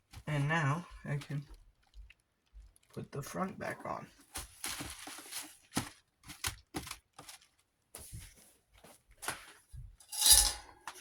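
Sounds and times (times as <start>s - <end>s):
fan guard clicking and scraping: 10.0s - 11.0s.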